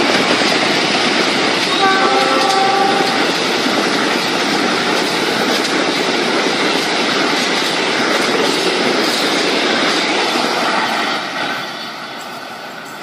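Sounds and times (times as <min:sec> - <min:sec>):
train wheels rumbling on rails: 0:00.0 - 0:13.0
train horn chord: 0:01.7 - 0:03.4.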